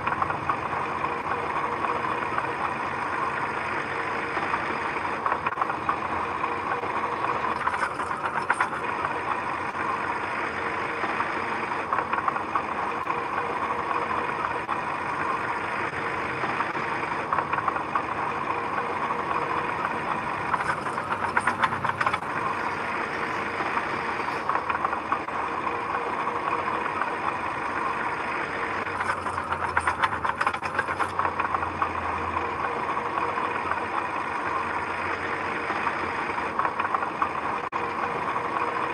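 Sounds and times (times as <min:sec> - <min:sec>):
heavy machine engine running: 0:00.0 - 0:38.9
metallic clatter: 0:06.7 - 0:09.1, 0:19.5 - 0:25.3, 0:28.8 - 0:31.9.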